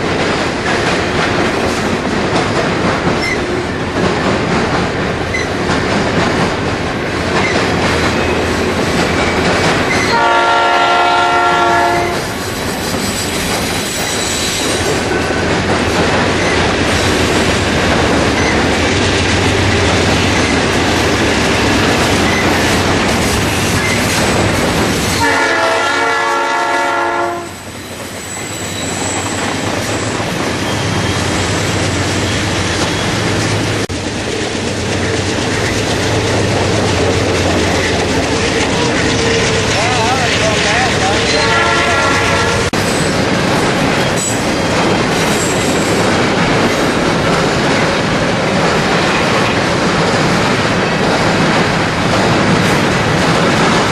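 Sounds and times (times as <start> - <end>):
train wheels clacking on rails: 0.0 - 53.9
locomotive air horn blasts: 10.1 - 12.2, 25.2 - 27.6, 41.3 - 42.8.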